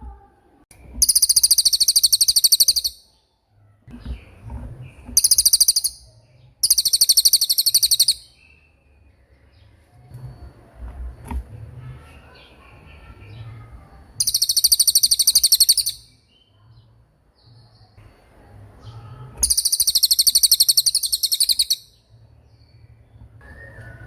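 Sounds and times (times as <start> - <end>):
soft bird chirps: 0.1 - 24.0
songbird high-pitched trills: 0.9 - 3.3, 5.2 - 10.6, 12.0 - 16.8, 17.4 - 24.0.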